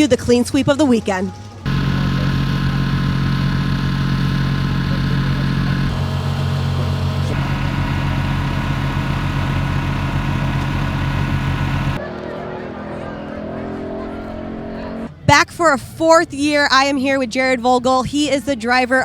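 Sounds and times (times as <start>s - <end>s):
monster truck engine idling: 1.7s - 12.0s.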